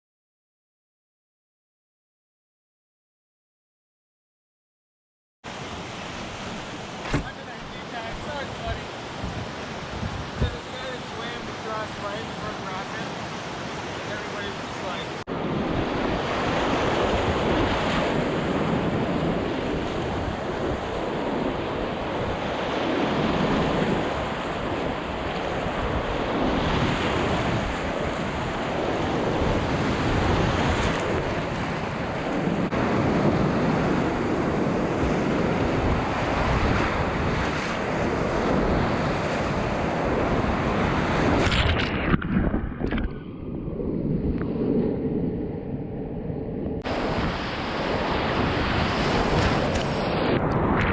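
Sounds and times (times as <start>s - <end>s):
whitewater rapids rushing: 5.5s - 15.2s.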